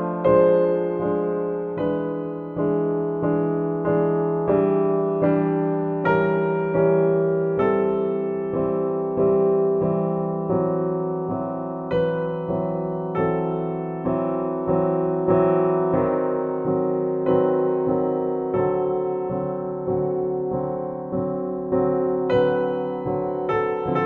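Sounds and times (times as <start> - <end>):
calm piano chords: 0.0 - 24.0.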